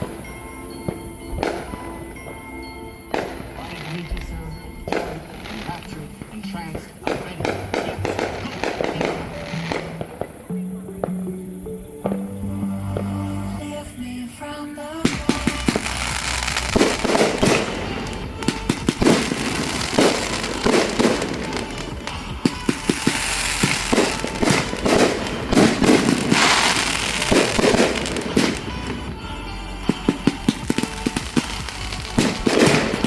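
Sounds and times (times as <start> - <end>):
fireworks bangs: 0.0 - 33.0
fireworks crackling: 0.0 - 33.0.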